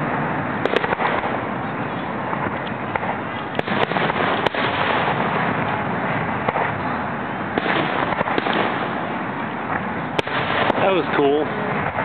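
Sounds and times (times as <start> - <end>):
fireworks bursting: 0.0 - 1.6, 2.2 - 12.0
sharp firework bangs: 0.6 - 1.4, 2.3 - 6.9, 7.5 - 12.0.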